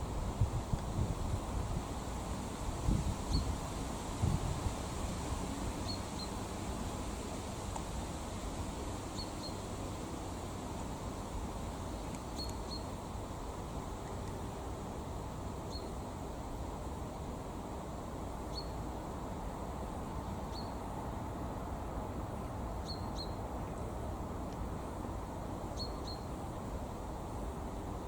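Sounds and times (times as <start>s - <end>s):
small bird chirping: 3.3s - 3.5s, 9.2s - 9.6s, 12.3s - 12.9s, 18.5s - 18.8s, 20.5s - 20.8s, 22.8s - 23.4s, 25.8s - 26.3s.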